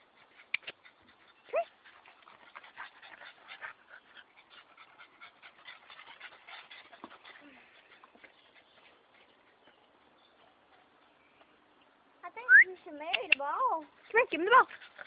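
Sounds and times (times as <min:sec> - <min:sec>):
dog panting quickly: 0:00.0 - 0:09.7, 0:13.7 - 0:15.0.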